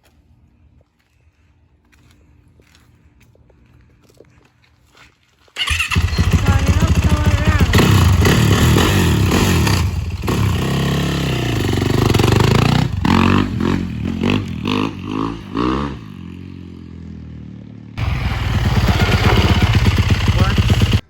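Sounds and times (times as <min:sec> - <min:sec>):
dirt bike engine revving: 0:05.6 - 0:16.8, 0:18.0 - 0:21.0.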